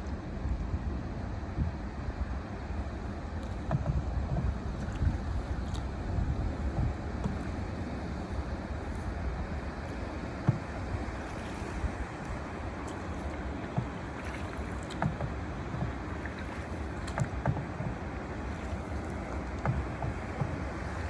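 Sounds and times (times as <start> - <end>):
wind rumble on microphone: 0.0 - 21.0
water sloshing against paddle: 2.5 - 21.0
small splashes and knocks: 3.4 - 21.0.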